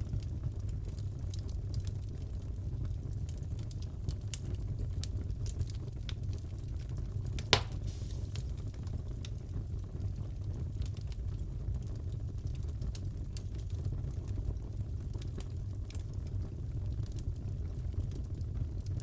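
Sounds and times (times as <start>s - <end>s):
low rumble of flames: 0.0s - 19.0s
wood fire crackling: 0.0s - 19.0s
sharp pop from fire: 7.4s - 8.8s.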